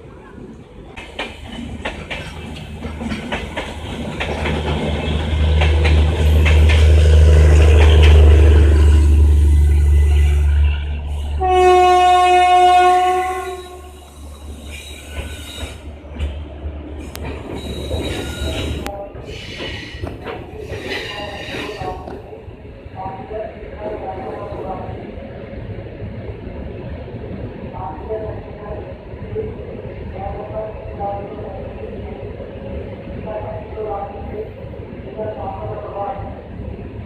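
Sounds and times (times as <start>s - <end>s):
locomotive rumble: 0.0s - 23.2s
locomotive horn: 6.8s - 14.2s.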